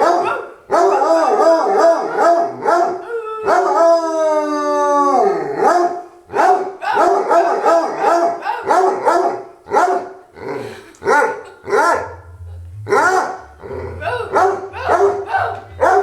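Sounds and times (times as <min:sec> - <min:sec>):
dogs barking and howling: 0:00.0 - 0:10.2, 0:12.9 - 0:16.0
low rumble: 0:11.9 - 0:16.0.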